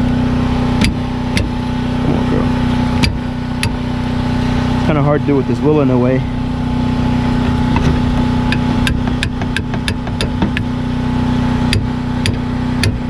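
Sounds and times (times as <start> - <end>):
steady low hum: 0.0 - 13.0
hammer striking metal: 8.5 - 10.7, 11.7 - 13.0.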